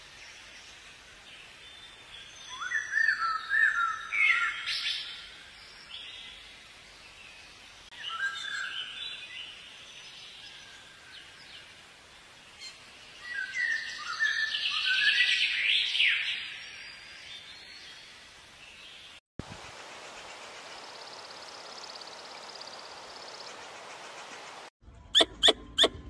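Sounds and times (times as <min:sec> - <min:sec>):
birds chirping: 0:18.7 - 0:26.0.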